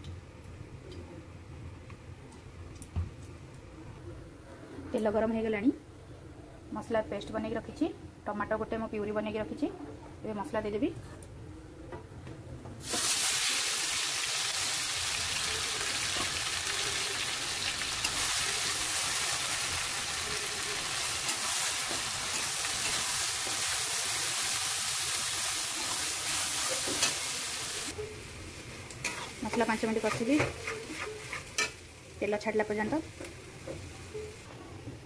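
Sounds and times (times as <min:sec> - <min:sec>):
paste sizzling in oil: 0:12.8 - 0:28.0
metal spatula scraping pan: 0:29.0 - 0:31.8.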